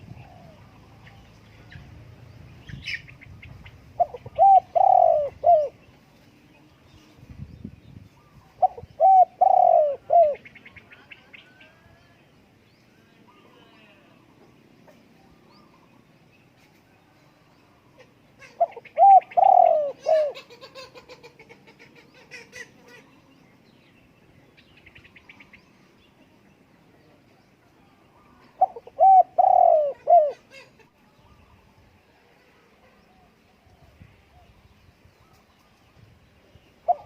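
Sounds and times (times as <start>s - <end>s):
dove cooing: 0.0s - 1.8s, 3.9s - 5.8s, 8.2s - 11.9s, 17.9s - 23.1s, 28.2s - 30.9s, 36.8s - 37.0s
small birds chirping faintly: 0.0s - 37.0s.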